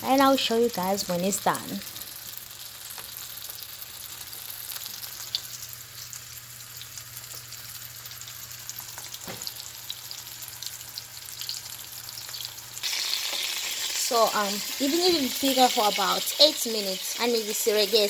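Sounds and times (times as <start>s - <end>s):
chicken sizzling in oil: 0.0s - 18.0s.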